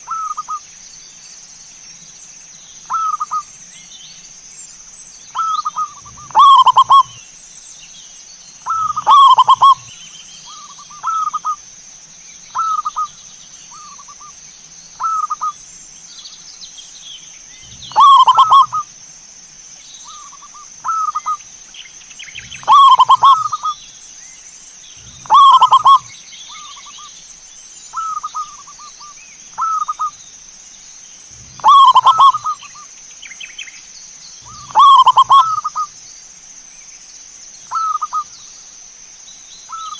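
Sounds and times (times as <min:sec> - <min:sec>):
doves cooing: 0:05.4 - 0:07.2, 0:08.6 - 0:09.9, 0:10.5 - 0:11.6, 0:17.6 - 0:18.9, 0:20.1 - 0:21.4, 0:22.3 - 0:23.8, 0:25.0 - 0:27.0, 0:29.6 - 0:30.1, 0:31.3 - 0:32.8, 0:34.4 - 0:35.9.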